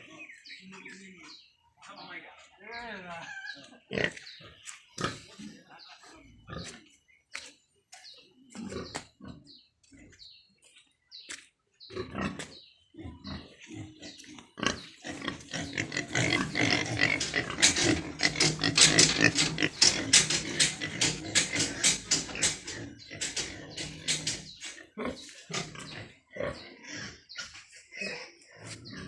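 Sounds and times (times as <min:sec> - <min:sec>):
pigs calling: 0:03.1 - 0:05.7, 0:11.9 - 0:29.0.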